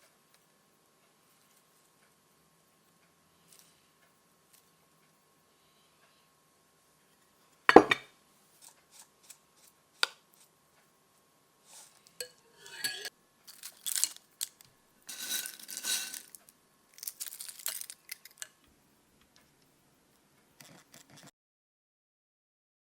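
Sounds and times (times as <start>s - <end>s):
dishes and cutlery clattering: 7.7s - 8.0s.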